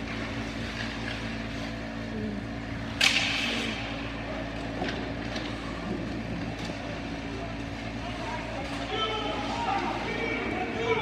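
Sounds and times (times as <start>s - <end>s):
sharp hockey stick crack: 3.0s - 3.8s.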